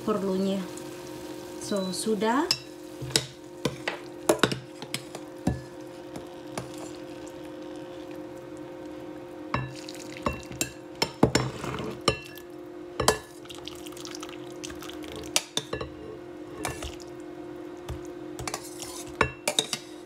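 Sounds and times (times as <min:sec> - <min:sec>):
metal spoon scraping saucepan: 0:18.4 - 0:20.0.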